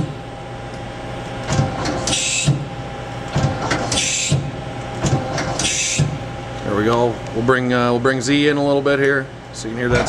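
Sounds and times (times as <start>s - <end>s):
machine hum: 0.0s - 10.0s
lathe turret hiss and clunk: 1.5s - 6.3s.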